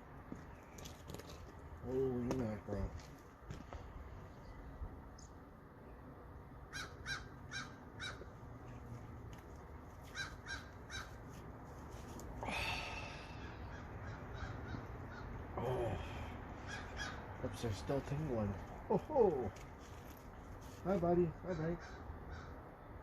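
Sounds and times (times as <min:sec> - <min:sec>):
crows cawing: 0:06.7 - 0:08.4, 0:10.0 - 0:11.3, 0:12.4 - 0:17.6, 0:21.4 - 0:22.6.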